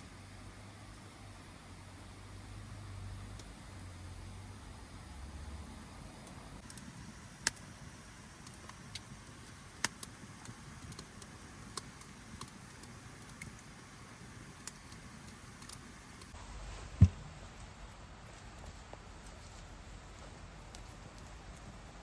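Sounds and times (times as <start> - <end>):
campfire crackling and popping: 6.2 - 16.4, 19.3 - 22.0.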